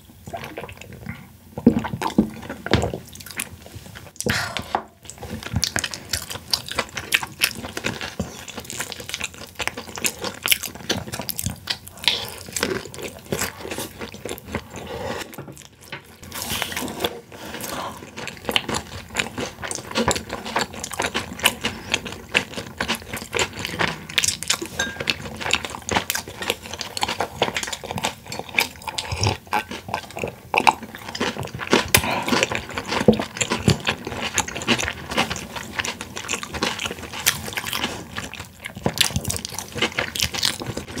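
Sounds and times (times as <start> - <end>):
wet chewing clicks and smacks: 18.2 - 41.0.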